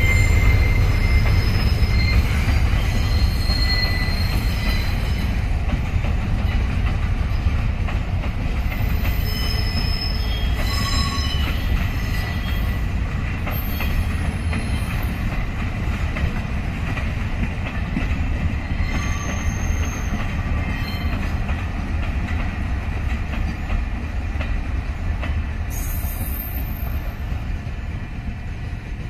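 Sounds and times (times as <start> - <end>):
steel wheels rumbling on track: 0.0 - 29.0
wheels clicking over rail joints: 0.4 - 27.5.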